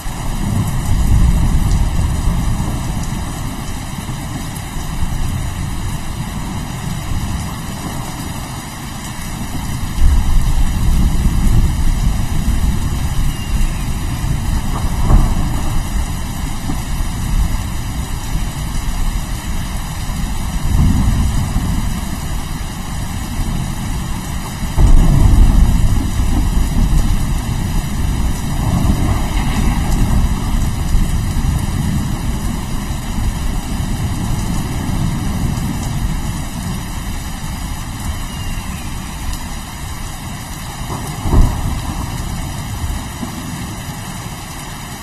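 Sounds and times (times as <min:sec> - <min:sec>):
steady rain: 0:00.0 - 0:45.0
rolling thunder: 0:00.2 - 0:08.2, 0:09.4 - 0:37.2, 0:40.8 - 0:43.6
sharp thunder clap: 0:13.7 - 0:16.8, 0:24.8 - 0:32.6.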